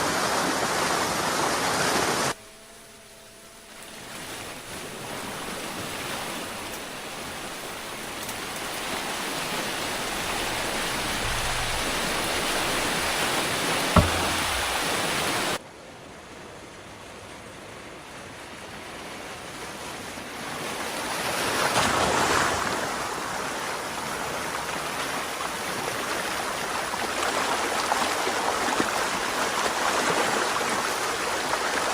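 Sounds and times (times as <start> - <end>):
water rushing through canal: 3.9 - 31.9
sharp knock: 10.4 - 15.0.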